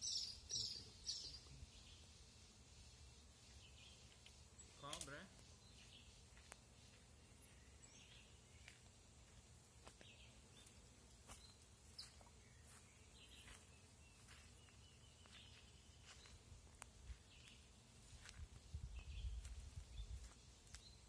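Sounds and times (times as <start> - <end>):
faint bird chirps: 0.0 - 8.9, 10.1 - 16.4
sharp faint clicks: 4.2 - 5.1.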